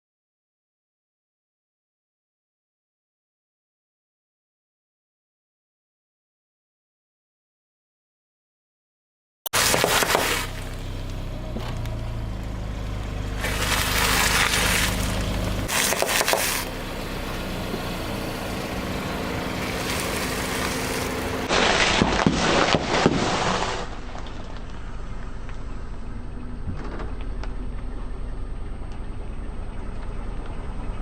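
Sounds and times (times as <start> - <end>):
tyre crushing crunchy objects: 9.5 - 12.0, 13.3 - 16.7, 19.2 - 24.7
car engine hum: 9.5 - 31.0.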